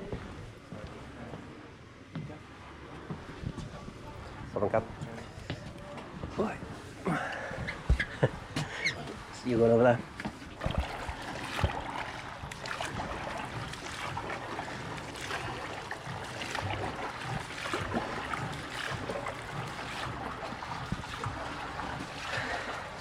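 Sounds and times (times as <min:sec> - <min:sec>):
water splashing: 0:06.4 - 0:23.0.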